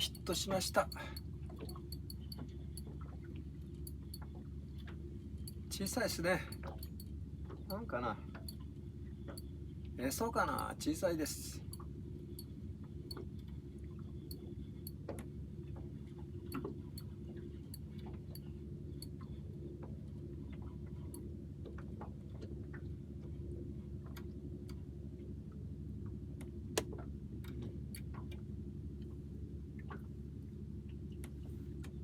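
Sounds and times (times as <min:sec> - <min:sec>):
fishing tackle clicks and taps: 0:00.0 - 0:03.1, 0:03.9 - 0:07.1
steady low hum: 0:00.0 - 0:32.0.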